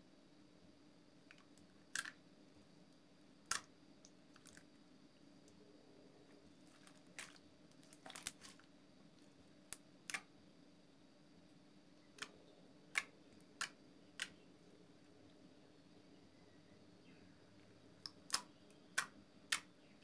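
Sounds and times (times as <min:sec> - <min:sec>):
slime popping and clicking: 0:12.9 - 0:14.4, 0:18.0 - 0:19.7.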